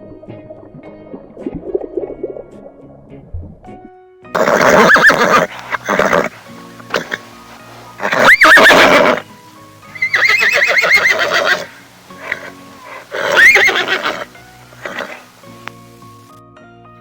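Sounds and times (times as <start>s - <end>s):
faint background music: 0.0s - 17.0s
horse neighing: 4.4s - 15.6s.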